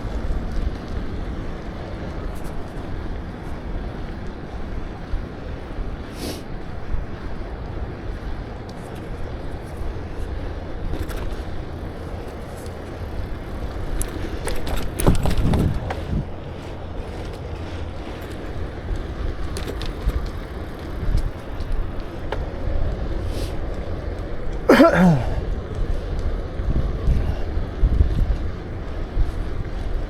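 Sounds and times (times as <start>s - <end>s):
bicycle road rumble: 0.0s - 30.0s
wind buffeting: 6.6s - 30.0s
light clicks and rattles: 8.6s - 24.7s.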